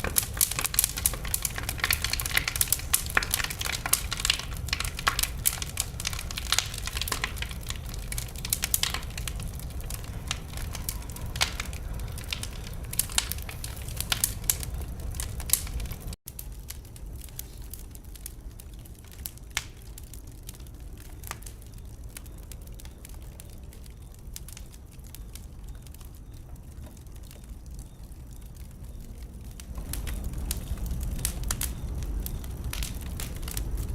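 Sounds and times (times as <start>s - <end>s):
low rumble of flame: 0.0s - 33.9s
wood fire crackling and popping: 0.0s - 33.9s.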